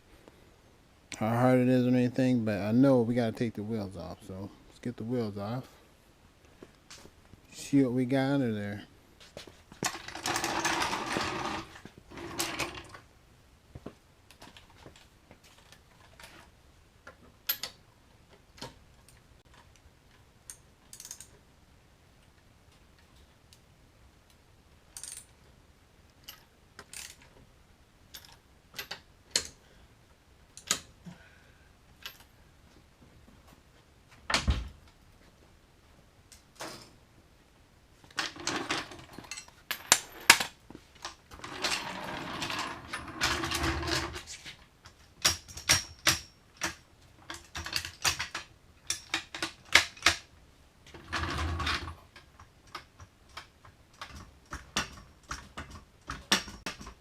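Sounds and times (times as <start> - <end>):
metallic clicks and knocks: 52.1 - 57.0.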